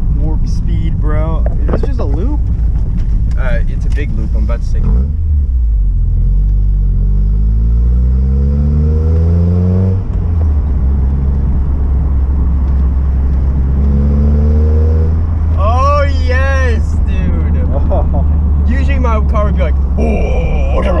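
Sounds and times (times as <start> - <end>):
heavy low exhaust rumble: 0.0 - 6.9, 15.0 - 21.0
car engine accelerating: 0.0 - 21.0.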